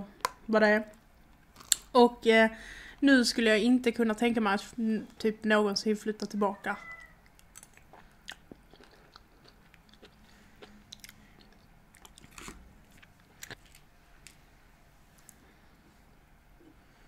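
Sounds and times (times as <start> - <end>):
person chewing food: 1.2 - 1.9, 7.0 - 14.4.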